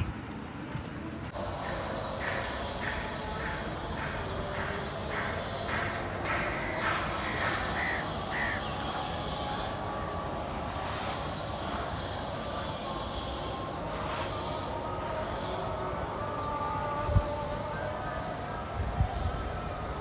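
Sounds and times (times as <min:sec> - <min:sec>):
steady background noise: 0:00.0 - 0:20.0
bird caw-like calls: 0:01.7 - 0:09.7.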